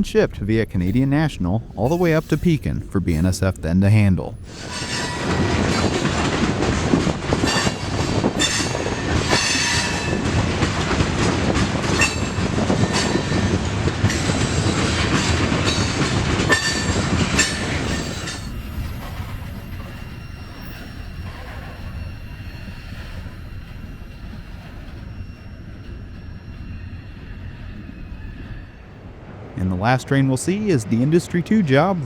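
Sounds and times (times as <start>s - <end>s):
train wheels clicking over track: 4.4s - 28.7s
high-pitched wheel squeal: 16.6s - 28.9s.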